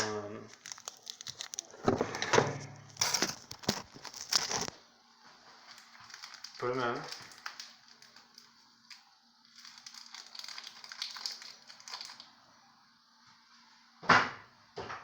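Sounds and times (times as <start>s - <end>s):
packets rustling and crinkling: 0.5s - 12.2s.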